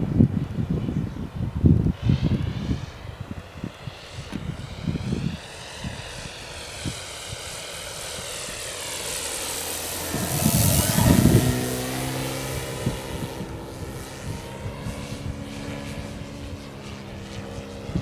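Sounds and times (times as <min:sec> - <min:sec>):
wind thumps on microphone: 0:00.0 - 0:07.5, 0:10.0 - 0:16.5
model plane motor whine: 0:03.4 - 0:18.0.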